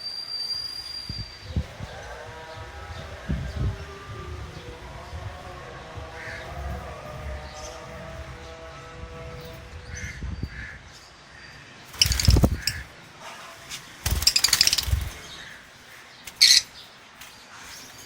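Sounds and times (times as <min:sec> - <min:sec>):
lovebirds screeching: 0:11.9 - 0:12.9, 0:14.0 - 0:16.9.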